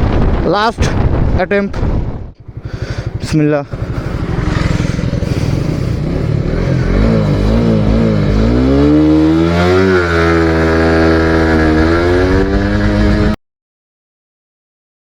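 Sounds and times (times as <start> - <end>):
motorcycle engine accelerating: 2.0 - 13.4.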